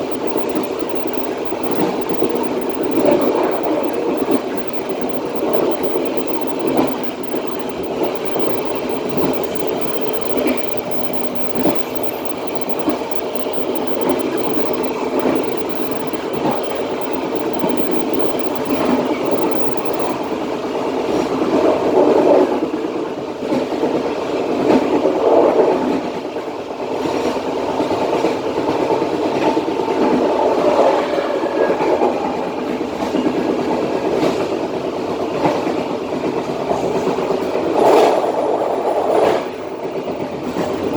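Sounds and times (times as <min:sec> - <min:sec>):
track clacks: 0:00.0 - 0:20.4
train wheels rumbling on rails: 0:00.0 - 0:40.9.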